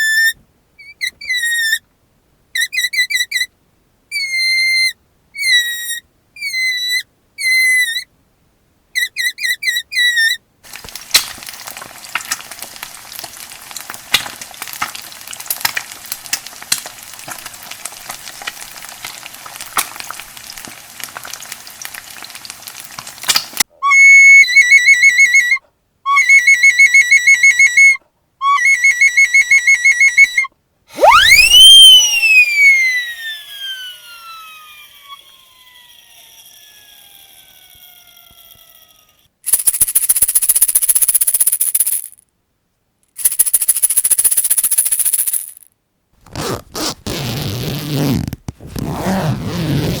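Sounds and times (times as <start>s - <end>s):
deflating balloon squealing: 0.0s - 1.8s, 2.6s - 3.5s, 4.1s - 8.1s, 9.0s - 10.4s, 23.8s - 39.3s, 46.3s - 50.0s
food sizzling in a frying pan: 10.7s - 23.6s
flute playing wavering notes: 23.8s - 38.6s.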